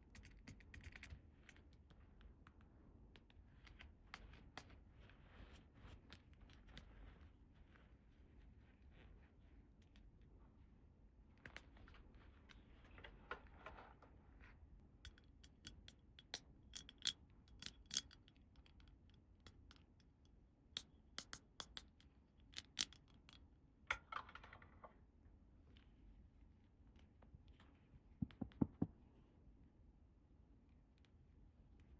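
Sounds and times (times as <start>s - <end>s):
plastic toy pieces clicking: 15.1s - 18.9s.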